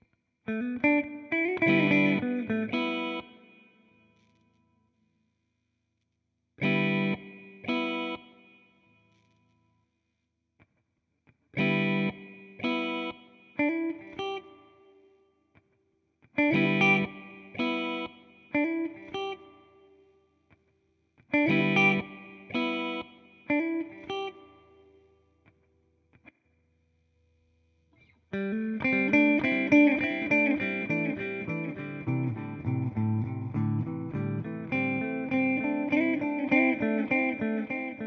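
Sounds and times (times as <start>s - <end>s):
electric guitar chords with delay: 0.5s - 3.4s, 16.4s - 19.4s, 21.4s - 24.4s, 28.3s - 38.0s.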